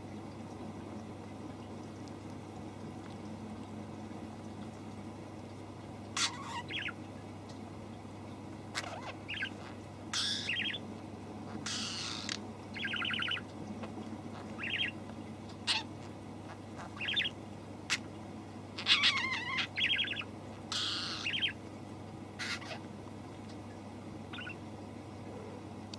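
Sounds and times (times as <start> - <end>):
young bird chirping: 6.2 - 7.0, 8.8 - 10.8, 11.6 - 13.5, 14.4 - 15.0, 16.8 - 18.0, 18.8 - 21.6, 24.3 - 24.6.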